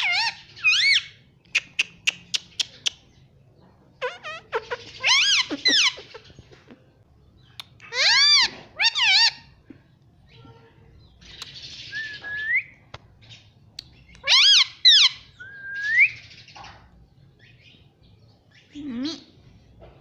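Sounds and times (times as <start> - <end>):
parakeet sharp calls: 4.0 - 6.4.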